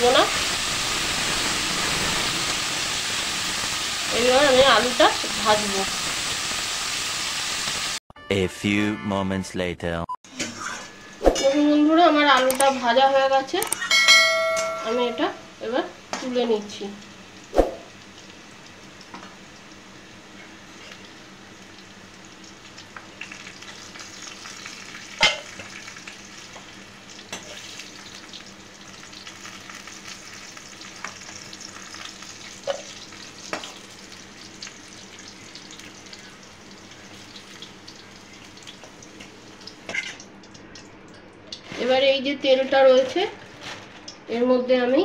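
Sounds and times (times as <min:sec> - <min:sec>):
food sizzling in oil: 0:00.0 - 0:08.0, 0:14.4 - 0:40.5.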